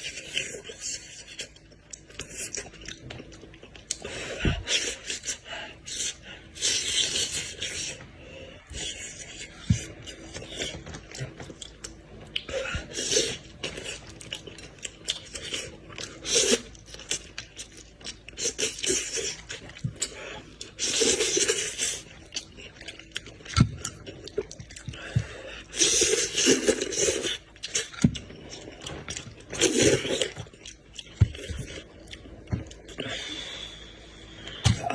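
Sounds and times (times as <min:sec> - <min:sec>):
chewing and crunching: 0:00.0 - 0:34.9.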